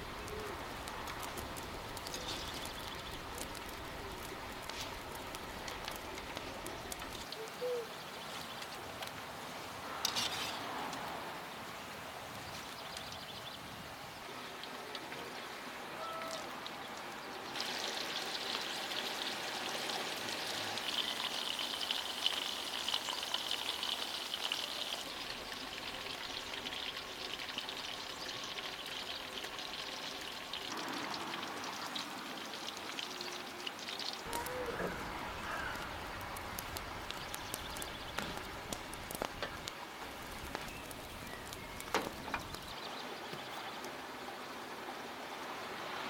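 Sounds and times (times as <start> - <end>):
chili peppers sizzling in hot oil: 0.0 - 7.4, 17.5 - 43.7.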